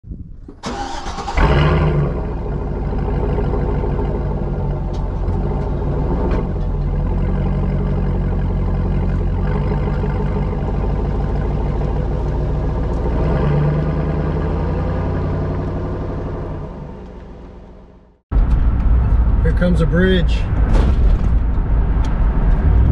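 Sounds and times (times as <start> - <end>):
engine burst: 0.6 - 3.8
car engine idling: 0.6 - 20.6.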